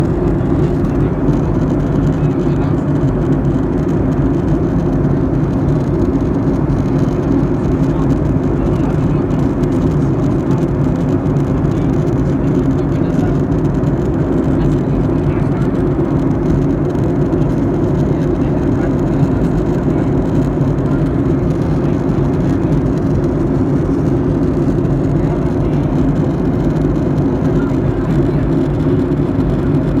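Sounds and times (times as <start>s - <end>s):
airliner cabin engine drone: 0.0s - 30.0s.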